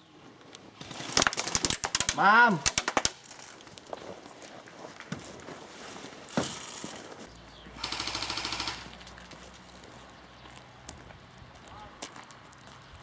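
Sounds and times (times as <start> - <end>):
airsoft full-auto burst: 7.8 - 9.1.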